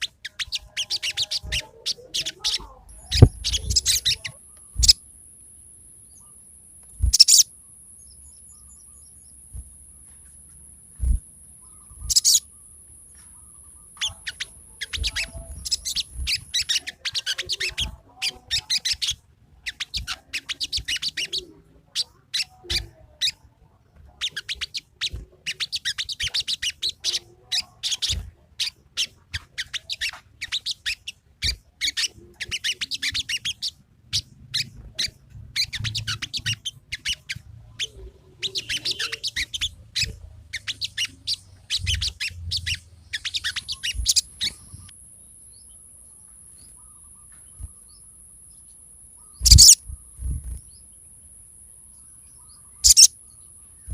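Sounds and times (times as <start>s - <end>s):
songbird chattering song: 0.0s - 53.9s
faint high whine: 2.8s - 17.1s.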